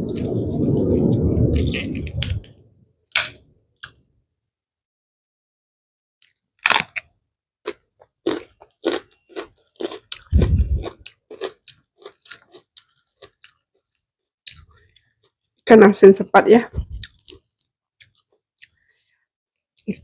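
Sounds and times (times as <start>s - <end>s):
leaf tearing crackles: 1.6s - 2.5s
crunching leafy greens: 8.3s - 13.6s.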